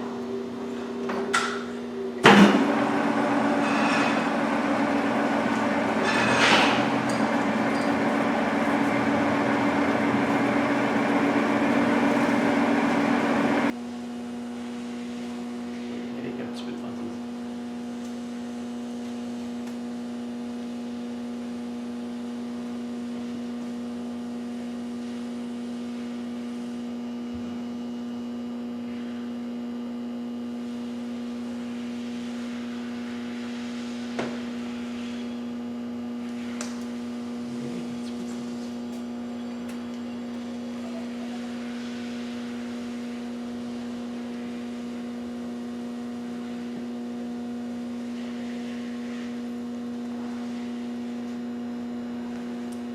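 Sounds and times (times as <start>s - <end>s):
metal lathe humming: 0.0s - 13.8s.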